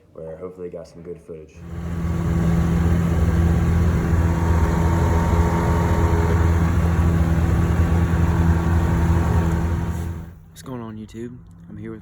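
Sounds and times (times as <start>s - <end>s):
engine running steadily: 1.6s - 10.4s.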